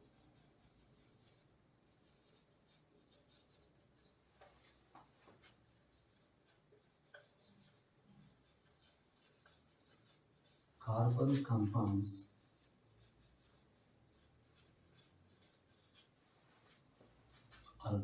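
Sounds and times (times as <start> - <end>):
pen scratching while writing: 0.1 - 10.8, 12.5 - 16.1.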